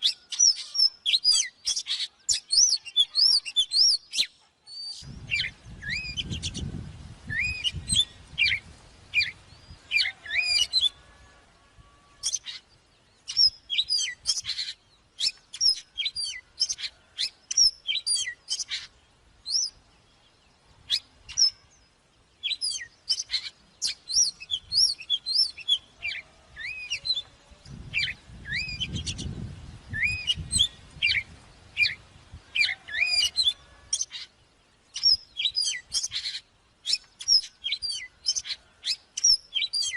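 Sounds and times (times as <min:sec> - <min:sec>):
bird singing whistles: 0:00.0 - 0:06.7, 0:07.3 - 0:08.6, 0:22.4 - 0:27.3, 0:27.9 - 0:32.0, 0:32.6 - 0:34.2, 0:35.0 - 0:39.9.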